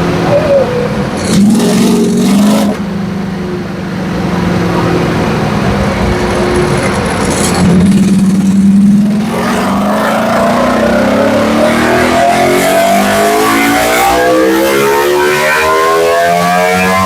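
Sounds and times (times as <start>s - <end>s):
motorcycle engine revving on dyno: 9.4s - 17.0s.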